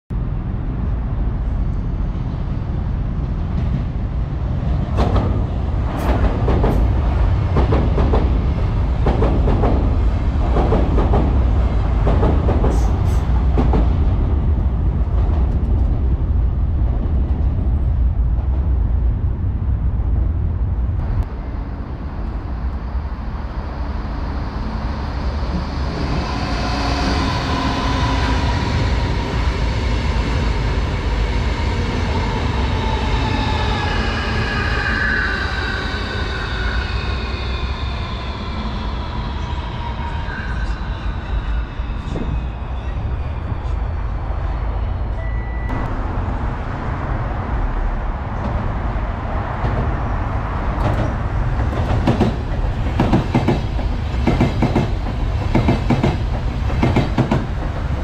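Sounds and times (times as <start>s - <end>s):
train rumbling: 0.1s - 58.0s.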